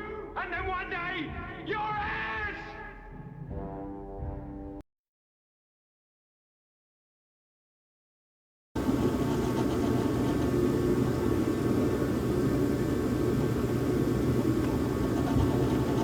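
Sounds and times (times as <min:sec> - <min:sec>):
drill press running: 0:08.8 - 0:16.0.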